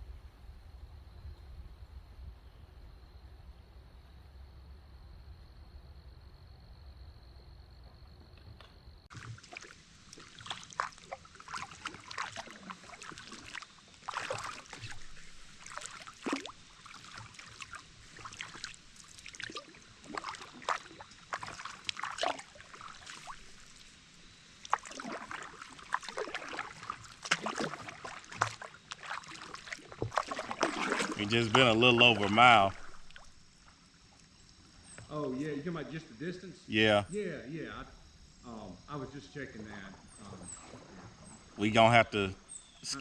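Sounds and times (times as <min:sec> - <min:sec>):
paddle splashing in water: 0:09.1 - 0:34.9, 0:39.7 - 0:41.7
water dripping: 0:09.1 - 0:35.2.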